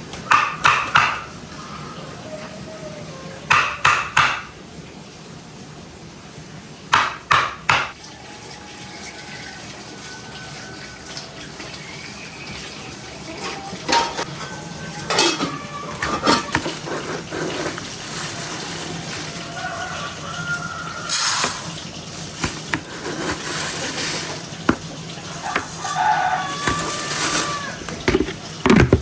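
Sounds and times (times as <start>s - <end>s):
pots and dishes clattering: 12.5s - 29.0s.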